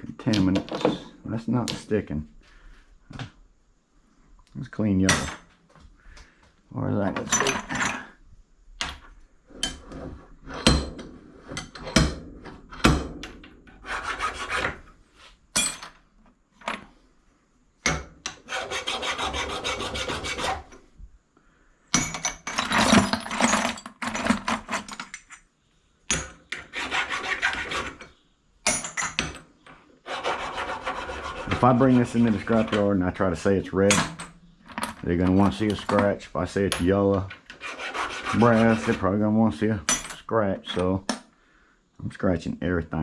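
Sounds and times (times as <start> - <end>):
hand tool scraping brass: 13.7 - 15.8, 18.2 - 20.9, 22.0 - 25.5, 26.1 - 40.9.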